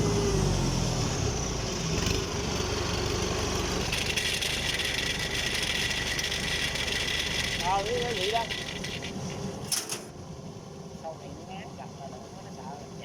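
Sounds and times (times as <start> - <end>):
combine harvester engine rattling: 0.0 - 10.2.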